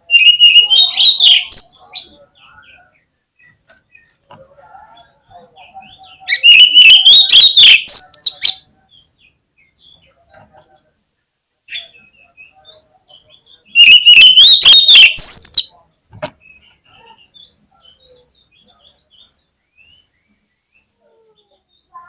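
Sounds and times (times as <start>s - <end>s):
bird song whistled and harsh notes: 0.0s - 4.2s, 5.8s - 10.4s, 11.7s - 15.8s
faint bird chirps: 0.0s - 11.0s, 11.6s - 22.0s.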